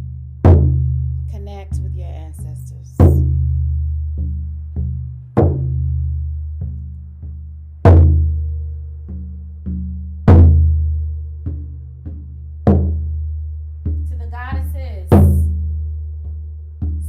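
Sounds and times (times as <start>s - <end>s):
deep drum beating: 0.0s - 17.0s.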